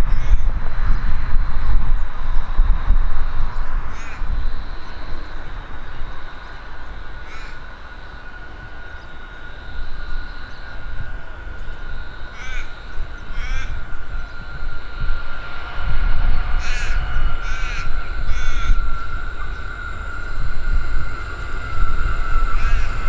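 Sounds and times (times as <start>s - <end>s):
faint high whine: 0.0s - 23.0s
low rumble: 0.0s - 23.0s
crow cawing: 3.9s - 4.2s, 7.2s - 7.6s, 12.3s - 13.9s, 16.6s - 20.3s, 21.2s - 23.0s.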